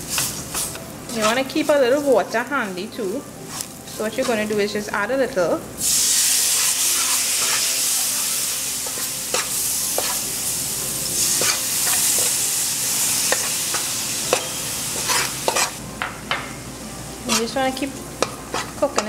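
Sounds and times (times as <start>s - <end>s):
onions sizzling in hot oil: 0.0s - 15.8s, 16.6s - 19.0s
spoon clinking against pot: 13.3s - 16.5s
metal spoon scraping pot: 14.3s - 15.8s.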